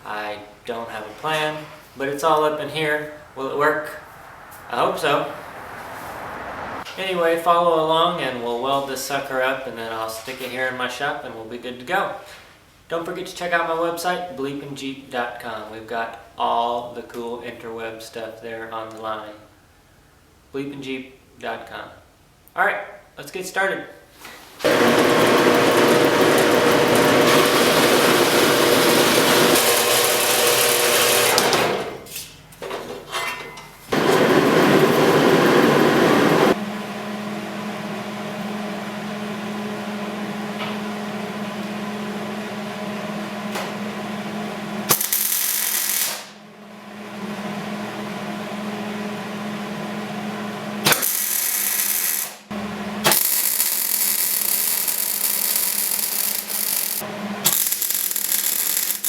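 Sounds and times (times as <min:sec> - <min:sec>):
machine humming: 0:24.6 - 0:32.0, 0:33.9 - 0:51.5, 0:52.5 - 0:59.0
metal grinding: 0:24.7 - 0:31.9.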